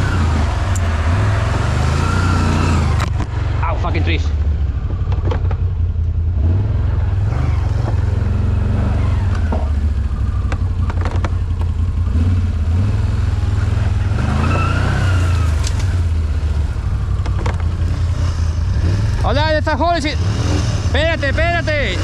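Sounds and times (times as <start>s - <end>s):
atv engine revving: 0.0s - 22.0s
sharp clicks and knocks: 5.1s - 6.2s, 9.3s - 11.9s, 17.1s - 18.5s.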